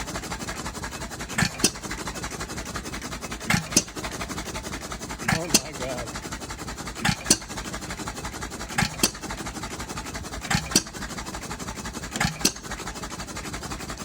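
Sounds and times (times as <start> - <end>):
rapid even ticking: 5.2 - 6.4
engine sharp bangs: 5.3 - 6.3.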